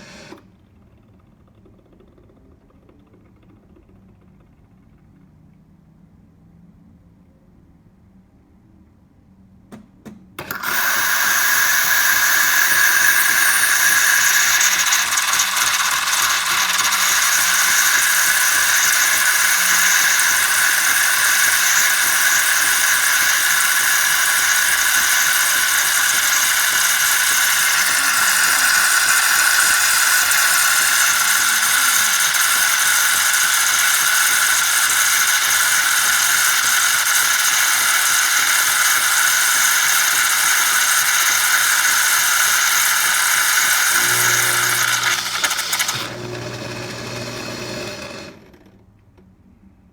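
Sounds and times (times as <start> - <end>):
espresso machine whirring: 0.0 - 1.2, 10.4 - 48.7
espresso machine clicks: 9.8 - 47.4.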